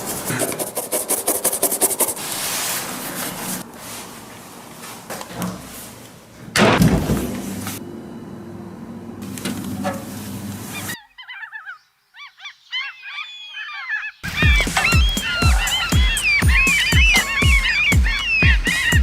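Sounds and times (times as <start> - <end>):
gulls calling: 10.6 - 19.0.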